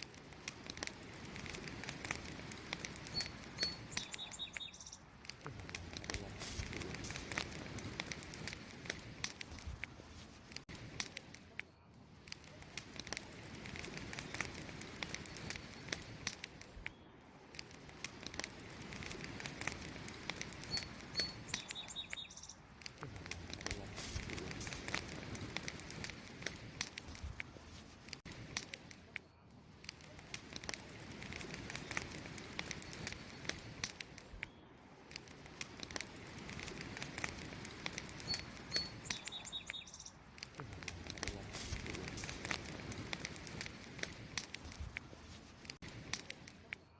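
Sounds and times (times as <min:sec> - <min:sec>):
wood fire crackling and popping: 0:00.0 - 0:46.9
bird chirping: 0:03.1 - 0:05.1, 0:20.6 - 0:22.7, 0:38.2 - 0:40.2.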